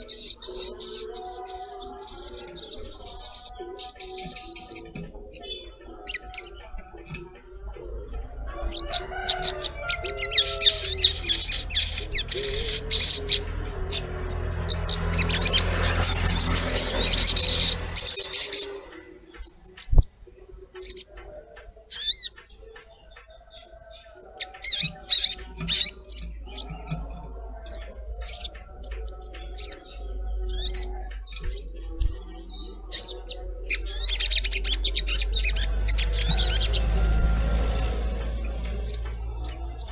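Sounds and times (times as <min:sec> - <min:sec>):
bird chirps and trills: 0:00.0 - 0:39.9
low hum: 0:06.6 - 0:20.0, 0:25.5 - 0:39.9.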